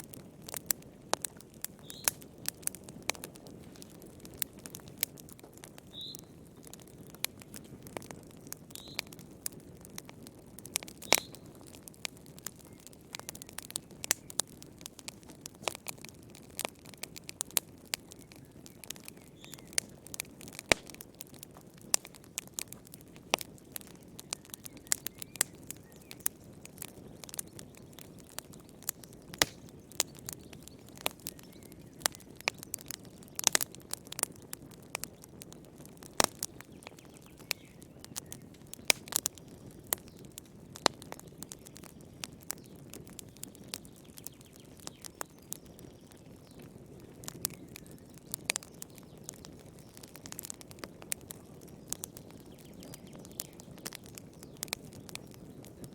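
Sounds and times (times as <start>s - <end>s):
low rush of burning: 0.0s - 41.2s
wood fire crackling and popping: 0.0s - 55.9s.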